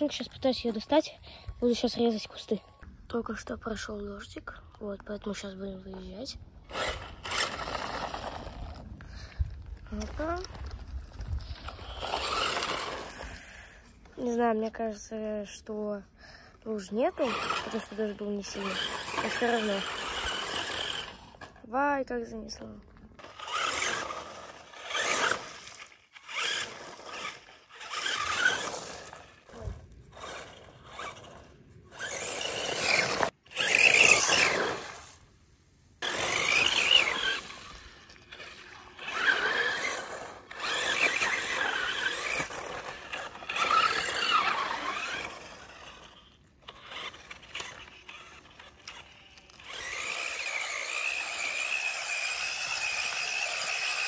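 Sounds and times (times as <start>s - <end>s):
tyres on the ground: 4.8s - 15.4s, 16.3s - 54.0s
toy truck electric motor whining: 5.9s - 13.8s, 16.8s - 21.6s, 23.2s - 35.2s, 36.0s - 54.0s.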